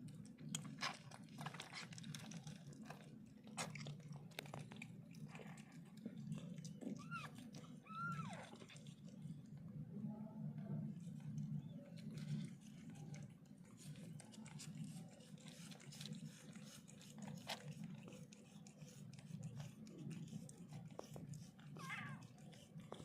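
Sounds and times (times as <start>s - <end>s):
kitten squeak: 7.0s - 8.4s.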